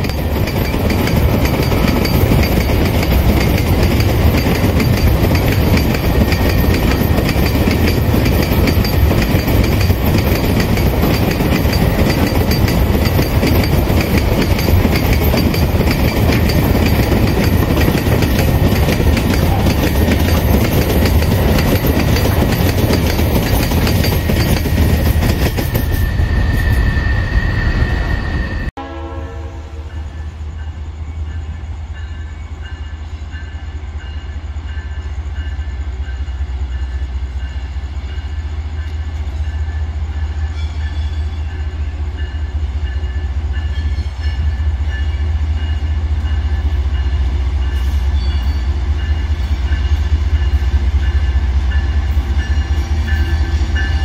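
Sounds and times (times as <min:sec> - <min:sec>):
wagon wheels on rails: 0:00.0 - 0:26.8
wheel squeal: 0:00.0 - 0:28.7
diesel locomotive engine rumbling: 0:00.0 - 0:54.0.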